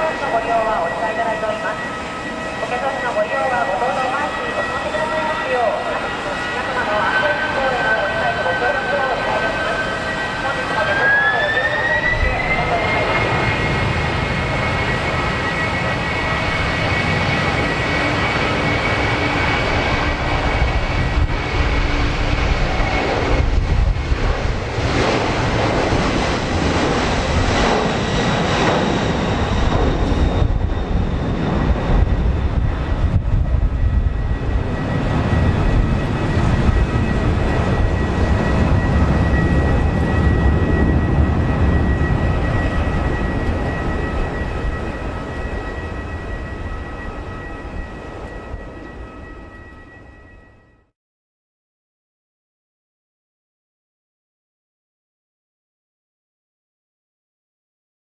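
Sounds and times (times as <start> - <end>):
jet engines whining and rumbling: 0.0 - 50.9
wind on microphone: 20.0 - 28.1, 29.4 - 44.8.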